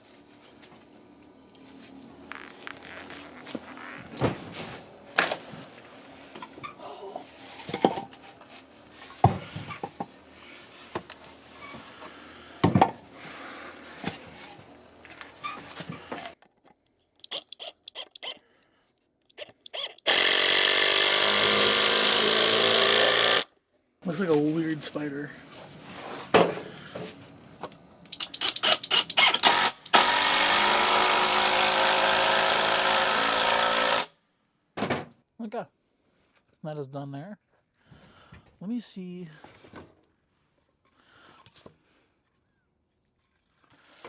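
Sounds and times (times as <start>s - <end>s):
knocks and clicks of handled parts: 16.4s - 18.4s, 28.1s - 29.2s
power drill driving a screw: 17.2s - 18.4s, 19.3s - 23.5s, 28.2s - 34.1s.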